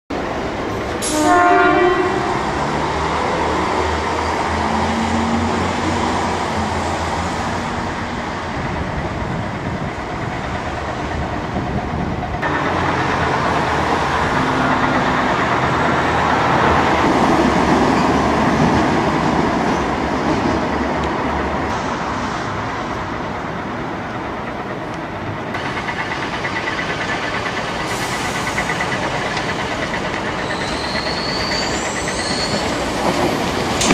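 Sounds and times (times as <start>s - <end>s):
wheels rumbling on rails: 0.1s - 33.9s
train horn blast: 1.0s - 2.5s.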